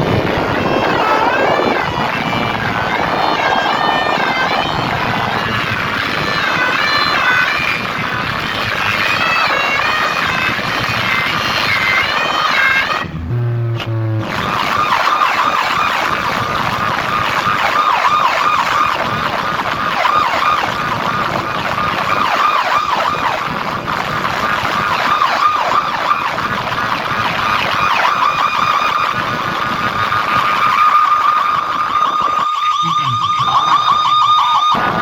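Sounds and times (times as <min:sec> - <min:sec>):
siren warbling through loudspeakers: 0:00.0 - 0:35.0.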